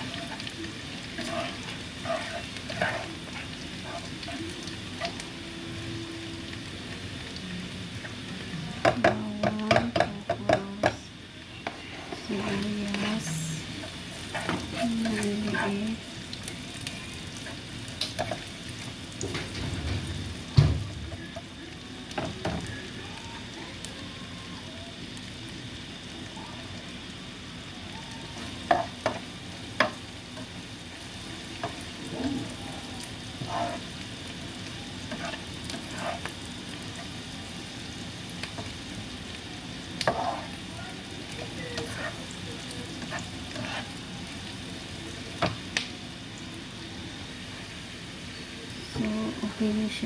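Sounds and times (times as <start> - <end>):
shallots sizzling in hot oil: 0.0 - 50.0
spatula knocking against pan: 8.8 - 11.0.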